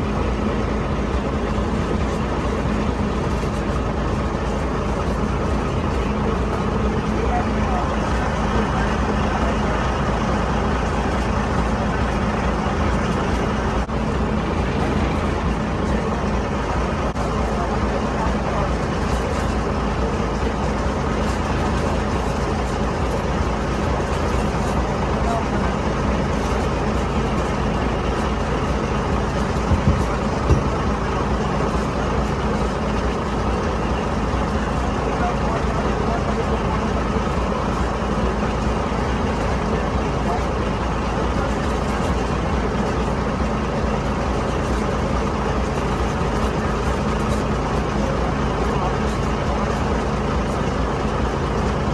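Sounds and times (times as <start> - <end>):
boat engine running: 0.0 - 51.9.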